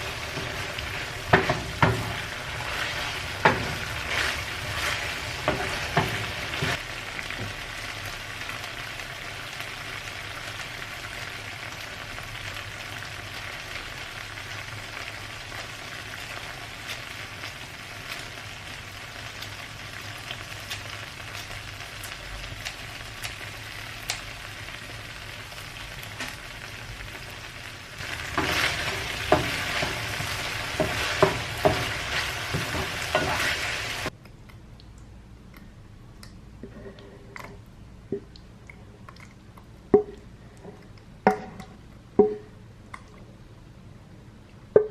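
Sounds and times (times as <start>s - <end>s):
food sizzling in a frying pan: 0.0s - 34.1s.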